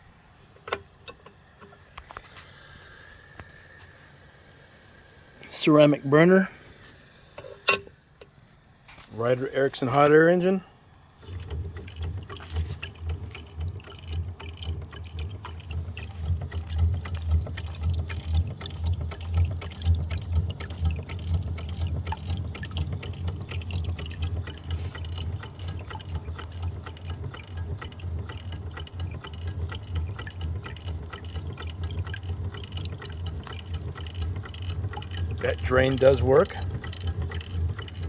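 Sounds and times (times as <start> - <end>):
steady low hum: 0.0 - 38.0
mechanical clicking and clatter: 11.0 - 38.0
water trickling and splashing: 11.1 - 38.0.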